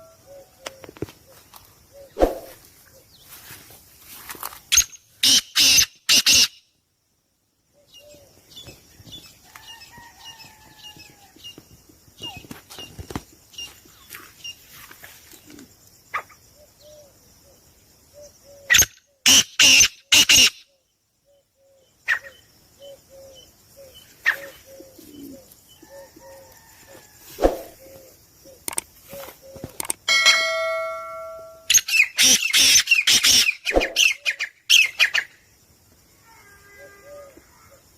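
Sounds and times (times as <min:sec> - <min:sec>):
caged birds chirping: 0:07.8 - 0:20.7, 0:21.4 - 0:30.0, 0:31.7 - 0:35.4.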